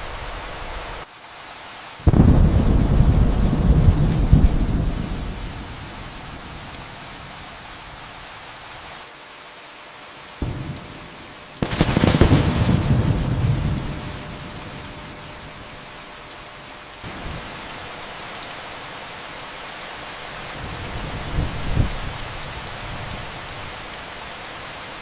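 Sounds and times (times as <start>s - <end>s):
steady rain: 0.0s - 25.0s
thunder rumbling: 2.1s - 7.4s, 10.4s - 17.9s, 20.5s - 23.8s.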